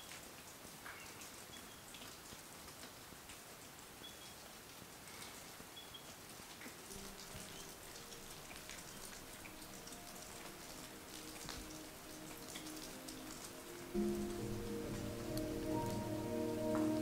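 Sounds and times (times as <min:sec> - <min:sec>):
rain pattering and dripping: 0:00.0 - 0:17.0
faint sustained music tones: 0:06.9 - 0:17.0.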